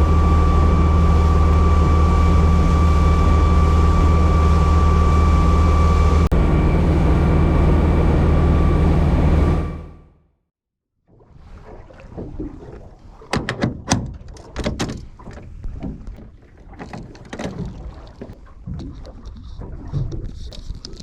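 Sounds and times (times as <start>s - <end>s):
water sloshing against hull: 11.0s - 21.0s
knocks on boat: 13.3s - 18.9s.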